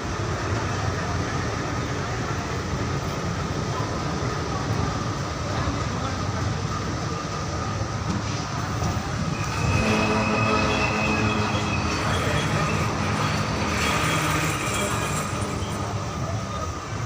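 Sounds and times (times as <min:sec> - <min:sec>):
train rumbling on rails: 0:00.0 - 0:17.0.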